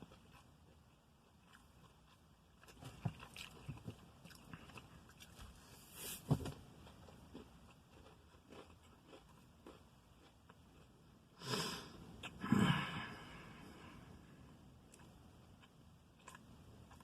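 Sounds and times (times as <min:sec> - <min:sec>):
person chewing with mouth clicks: 0:00.0 - 0:05.5, 0:06.8 - 0:10.9, 0:12.1 - 0:12.4, 0:14.4 - 0:17.0.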